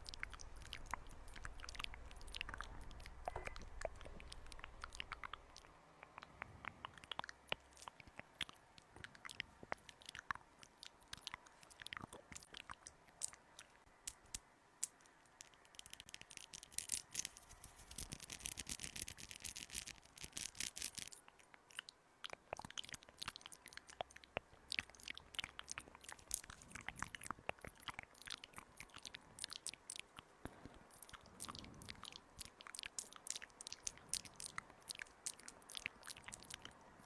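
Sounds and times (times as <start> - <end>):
crisp clicks and crackles: 0.0 - 37.0
scratchy rubbing: 15.8 - 21.1.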